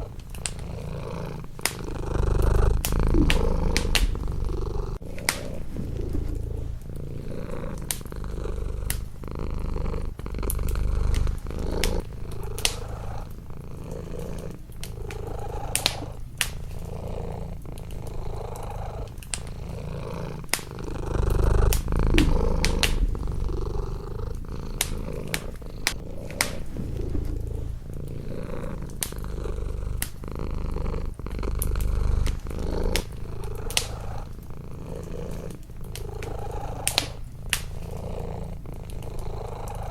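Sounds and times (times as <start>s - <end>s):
cat purring: 0.0s - 39.9s
wood fire crackling and popping: 0.0s - 39.9s.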